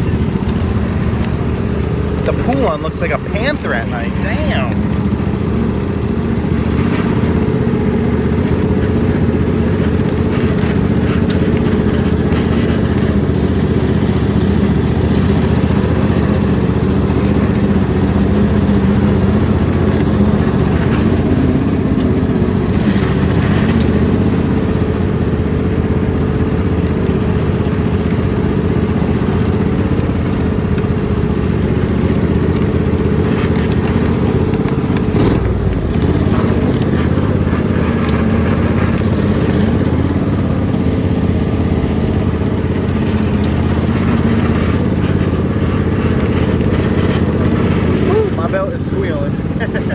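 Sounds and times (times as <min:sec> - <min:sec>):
riding lawn mower engine: 0:00.0 - 0:49.9.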